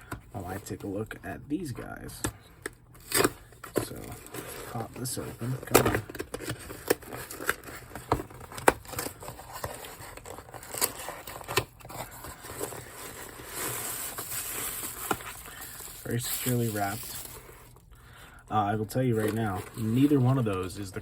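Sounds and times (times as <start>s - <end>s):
wrapping crinkling and tearing: 3.0s - 17.9s, 18.8s - 21.0s
cardboard packaging clicks and knocks: 5.6s - 12.8s.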